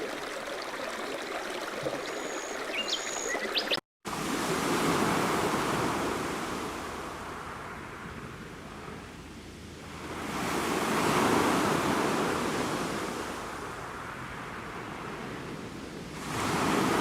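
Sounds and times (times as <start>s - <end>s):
running stream: 0.0s - 17.0s
high bird chirps: 2.0s - 3.8s
surf wave: 2.0s - 17.0s.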